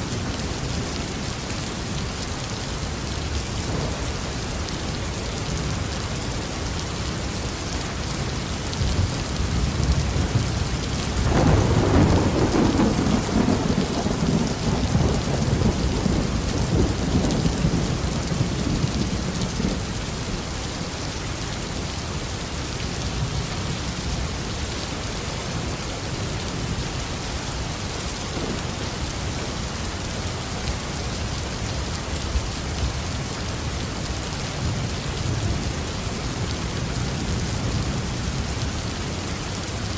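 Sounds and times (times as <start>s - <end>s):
heavy rain on a roof: 0.0s - 39.9s
thunder: 3.5s - 5.7s, 8.8s - 19.9s, 28.3s - 30.1s.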